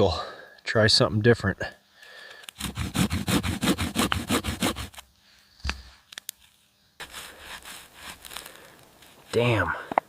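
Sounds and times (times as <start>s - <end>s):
wood rubbing on wood: 2.6s - 5.0s, 7.0s - 8.5s.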